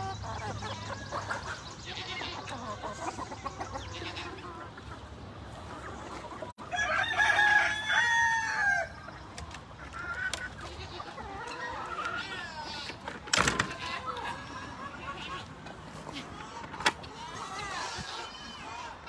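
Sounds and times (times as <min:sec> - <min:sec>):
chickens clucking faintly: 0:00.0 - 0:19.0
rooster crowing: 0:06.6 - 0:09.0.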